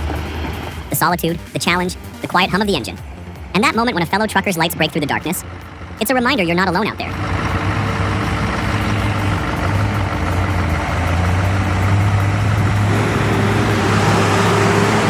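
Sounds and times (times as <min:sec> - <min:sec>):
road noise: 0:00.0 - 0:15.0
truck engine running: 0:00.0 - 0:15.0.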